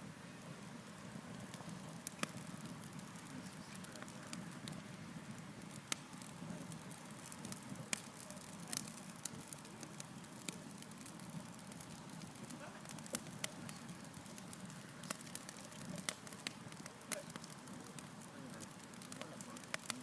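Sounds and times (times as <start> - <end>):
wood crackling and popping: 0.0 - 20.0
flames rushing: 0.1 - 20.0.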